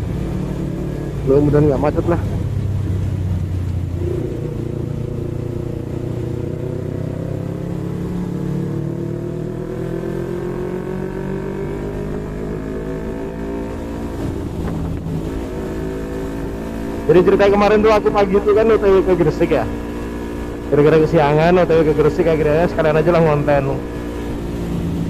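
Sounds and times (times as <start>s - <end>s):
motorcycle engine accelerating: 0.0s - 25.0s
road and wind rumble: 0.0s - 25.0s.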